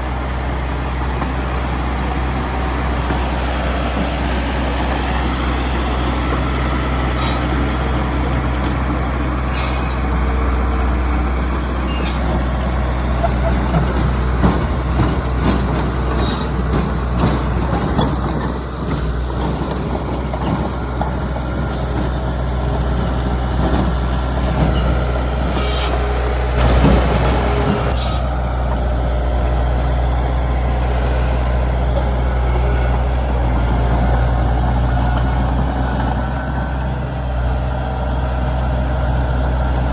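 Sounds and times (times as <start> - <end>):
heavy diesel engines running: 0.0 - 39.9
short hisses: 9.5 - 10.0
metallic clanks: 13.2 - 22.1.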